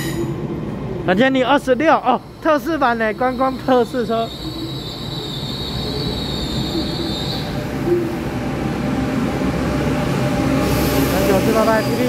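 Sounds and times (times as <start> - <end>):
train cars rumbling: 0.0 - 12.0
high squeal: 2.2 - 8.3.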